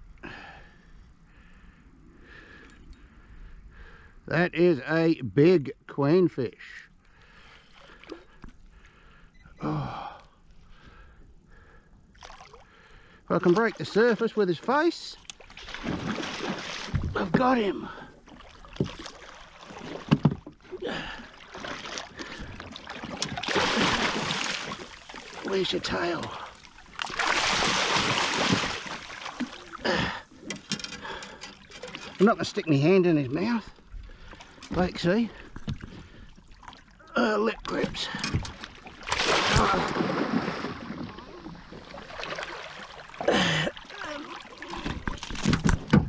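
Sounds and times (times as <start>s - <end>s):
fish splashing in water: 15.3s - 17.0s, 21.3s - 25.6s, 26.3s - 30.0s, 38.8s - 45.4s.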